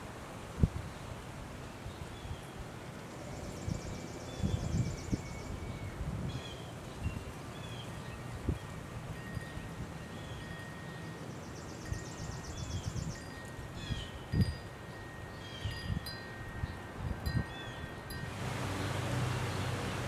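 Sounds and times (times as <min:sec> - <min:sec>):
small birds chirping: 0:09.4 - 0:18.0.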